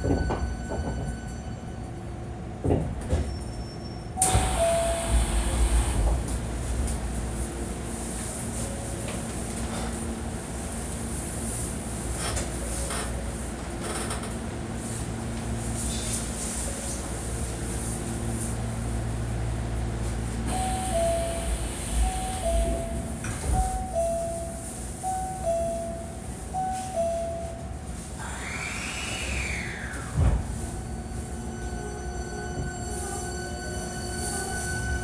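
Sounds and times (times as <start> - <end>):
two-note door chime: 20.5 - 27.8
steady whining tones: 28.2 - 32.8.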